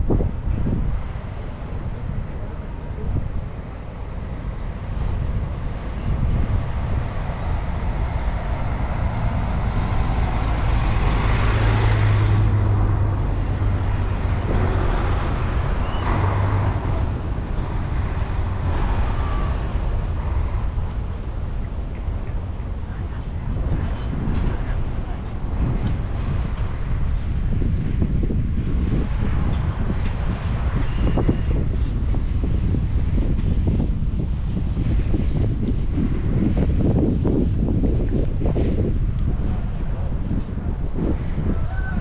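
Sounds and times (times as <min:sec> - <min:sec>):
vehicle driving past: 0:05.8 - 0:22.5.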